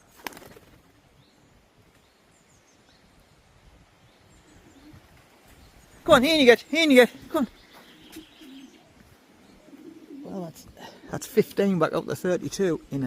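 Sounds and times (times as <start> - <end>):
faint high bird chirps: 4.1 - 10.3.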